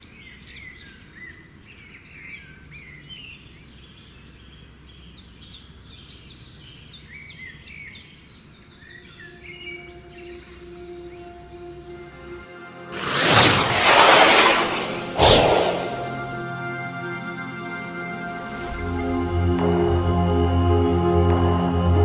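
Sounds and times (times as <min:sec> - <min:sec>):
quick downward-sweeping bird notes: 0:13.0 - 0:16.4.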